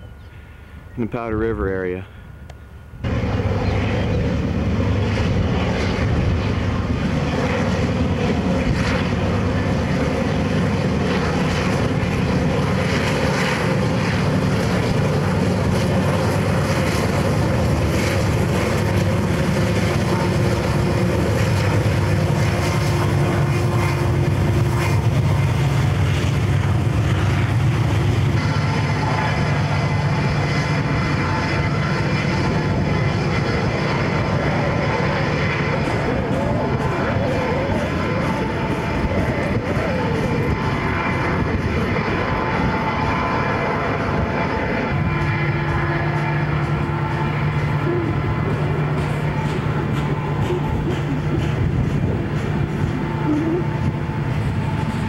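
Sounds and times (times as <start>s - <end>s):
diesel locomotive engines running: 0.0s - 55.0s
freight cars rolling on rails: 35.0s - 55.0s.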